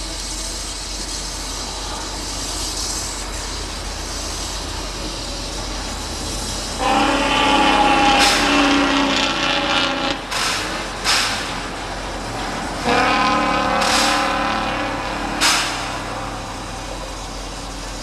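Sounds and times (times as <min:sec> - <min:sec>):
train rolling rumble: 0:00.0 - 0:18.0
steam locomotive whistle: 0:06.7 - 0:10.3, 0:12.8 - 0:16.7.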